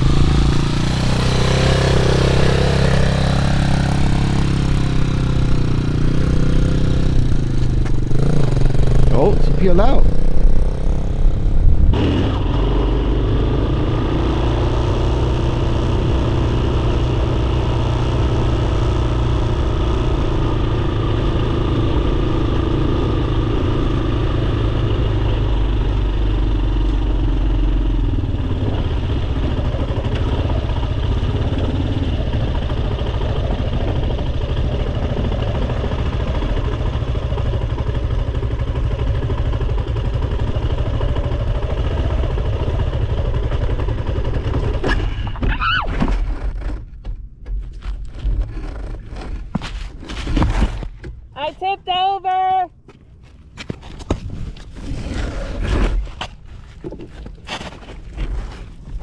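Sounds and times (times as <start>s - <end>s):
dirt bike engine running: 0.0s - 44.8s.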